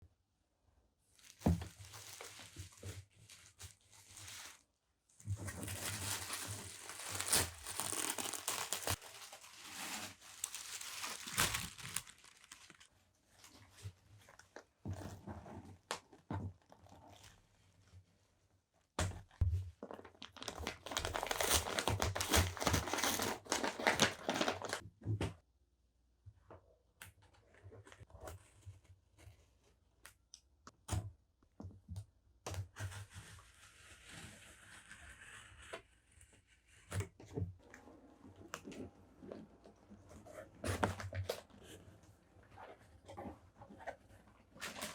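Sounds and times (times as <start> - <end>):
wrapping crinkling and tearing: 1.2 - 13.6, 19.8 - 24.8, 44.5 - 44.9.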